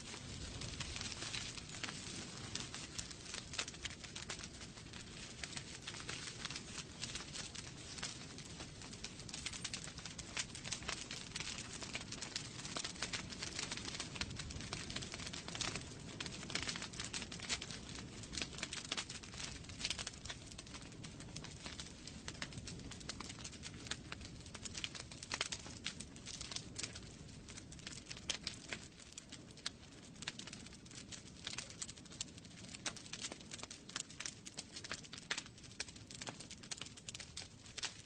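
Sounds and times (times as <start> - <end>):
burning logs crackling and popping: 0.0 - 38.0
low rush of flames: 0.0 - 38.0.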